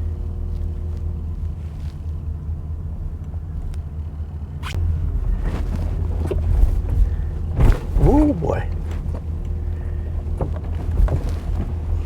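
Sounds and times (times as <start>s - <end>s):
truck engine and road rumble: 0.0s - 12.0s
knocks and rattles: 5.5s - 12.0s.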